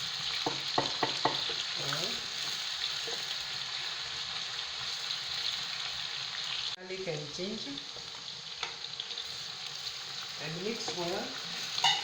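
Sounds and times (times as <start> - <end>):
onions sizzling in oil: 0.0 - 12.0
spoon tapping a pot: 0.4 - 1.6, 11.8 - 12.0.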